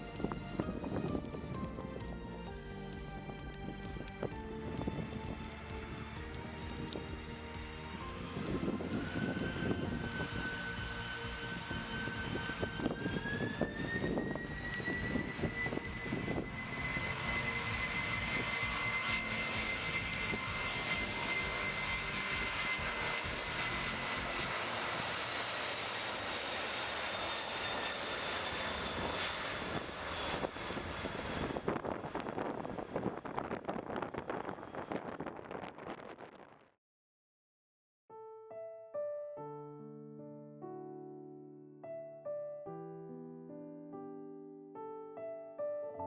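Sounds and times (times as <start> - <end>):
jet engines spooling up: 0.0 - 36.0.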